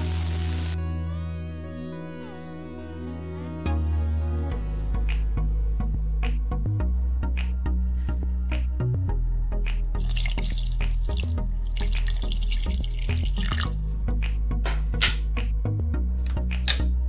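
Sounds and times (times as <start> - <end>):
water pouring into a pot: 10.0 - 14.0.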